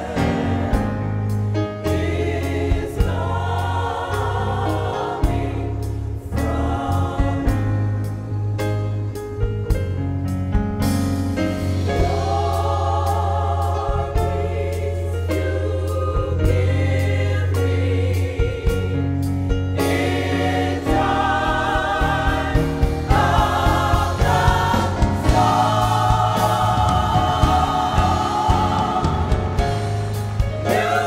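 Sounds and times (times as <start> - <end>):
drum beats: 0.0 - 5.8, 19.8 - 31.0
gospel choir singing: 0.0 - 9.2, 11.4 - 31.0
bass line: 0.0 - 31.0.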